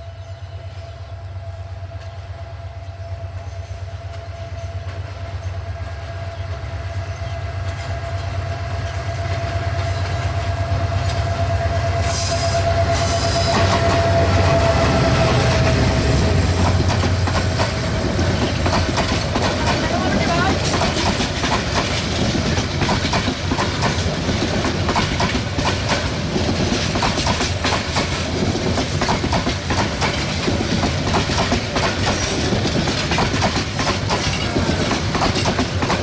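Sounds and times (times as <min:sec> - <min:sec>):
diesel locomotive rumble and whine: 0:00.0 - 0:36.0
wheels clattering over rail joints: 0:16.5 - 0:36.0.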